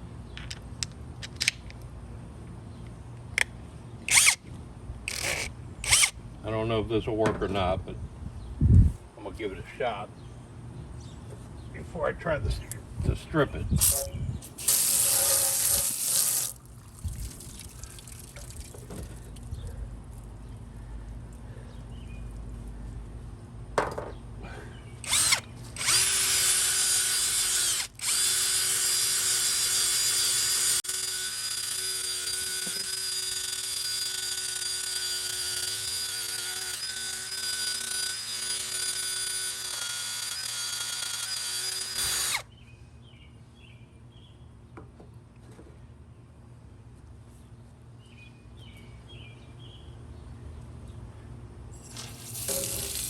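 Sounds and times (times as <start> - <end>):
power drill motor whine: 4.1 - 4.4, 5.1 - 6.2, 25.0 - 42.5.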